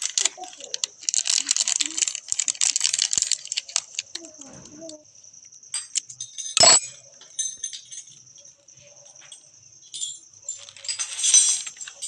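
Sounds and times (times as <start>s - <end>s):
metal clinking and rattling: 5.7s - 8.2s, 9.3s - 12.0s
metal jangling: 5.8s - 8.5s, 9.4s - 12.0s.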